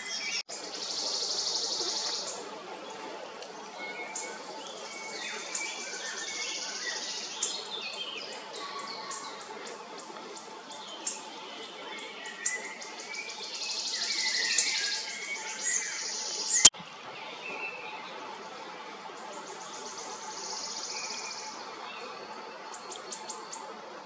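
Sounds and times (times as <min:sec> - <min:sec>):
small birds chirping and trilling: 0:00.0 - 0:18.0.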